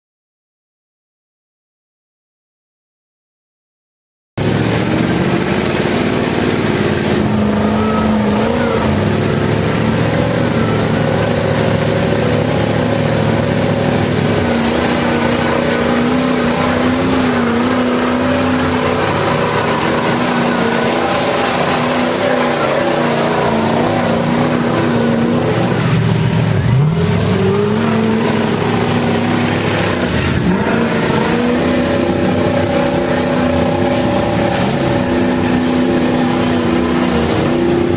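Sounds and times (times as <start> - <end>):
truck engine revving: 4.4 - 37.9.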